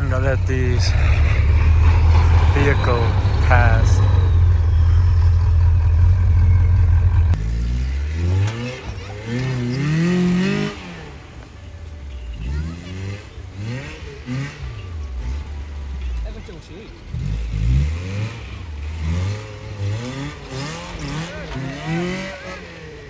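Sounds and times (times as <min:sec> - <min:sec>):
low engine rumble: 0:00.0 - 0:09.4
trucks revving passing by: 0:00.0 - 0:23.0.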